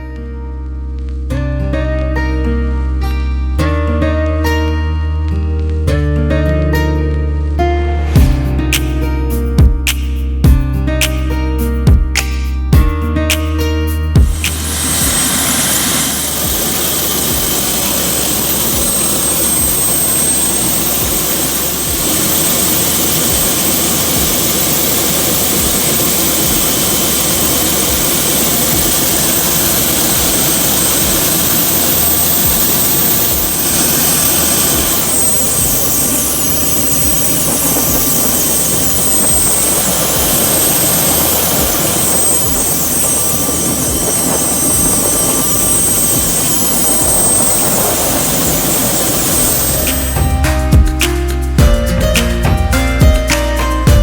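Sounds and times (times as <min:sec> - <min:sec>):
helicopter turbine and rotor noise: 0:14.2 - 0:50.9.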